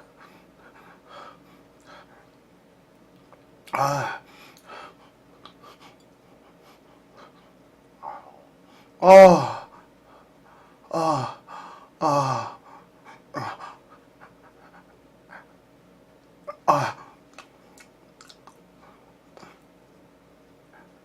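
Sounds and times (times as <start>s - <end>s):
man groaning sighs: 10.9s - 12.6s
breaths and mouth clicks: 17.3s - 18.6s.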